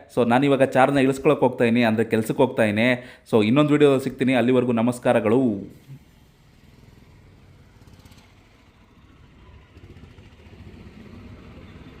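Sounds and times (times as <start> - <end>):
road traffic rumble: 5.6 - 12.0.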